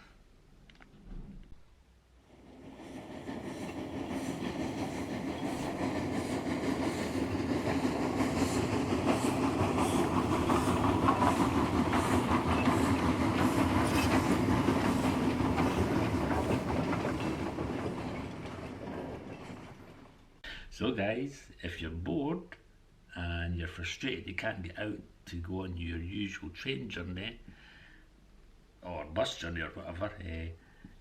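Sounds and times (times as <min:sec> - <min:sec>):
steam train rumbling: 0:02.2 - 0:20.4
wheels beating over rails: 0:02.3 - 0:20.4.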